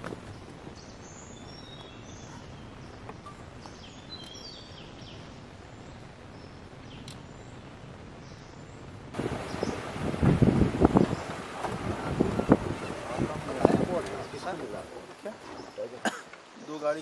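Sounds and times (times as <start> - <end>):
birds chirping and whistling: 0.3 - 8.8, 9.4 - 9.9.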